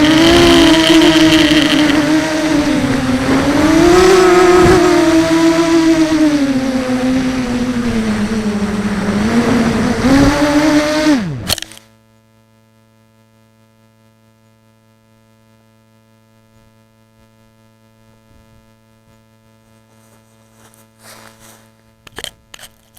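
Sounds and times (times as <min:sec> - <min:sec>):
quadcopter motors whining: 0:00.0 - 0:11.8
faint electrical hum: 0:11.3 - 0:22.9.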